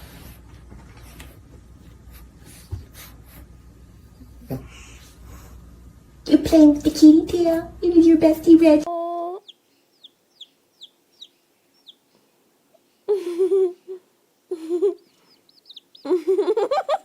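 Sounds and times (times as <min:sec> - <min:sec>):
chicken peeping: 0:08.9 - 0:13.1, 0:14.5 - 0:17.0
chicken warbling calls: 0:14.9 - 0:17.0.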